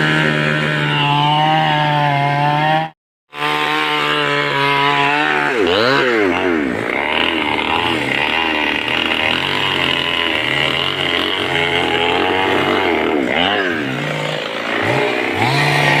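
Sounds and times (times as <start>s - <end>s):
two-stroke chainsaw engine revving: 0.0s - 16.0s.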